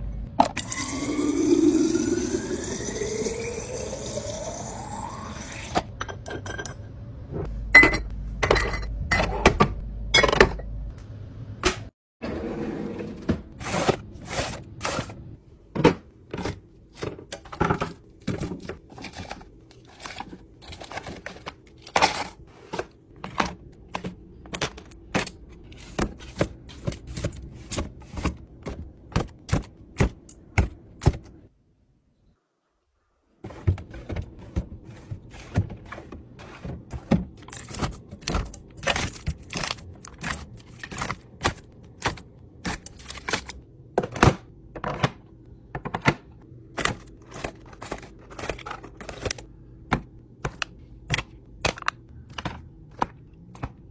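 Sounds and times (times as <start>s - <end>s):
food containers knocking and clicking: 15.7s - 31.4s, 33.5s - 53.9s.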